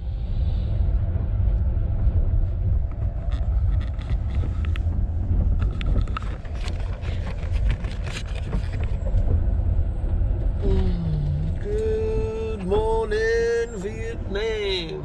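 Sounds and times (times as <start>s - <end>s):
train rumble from inside: 0.0s - 15.0s.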